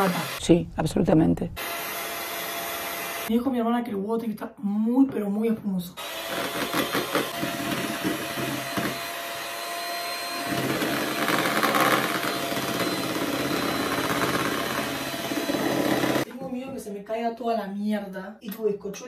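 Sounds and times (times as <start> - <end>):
electric mixer whipping eggs: 0.0 - 0.4, 1.6 - 3.3, 6.0 - 16.3.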